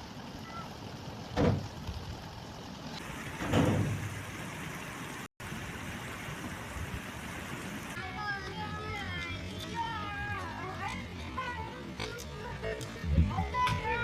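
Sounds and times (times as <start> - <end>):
rain: 0.0 - 10.8
running water: 0.0 - 14.0.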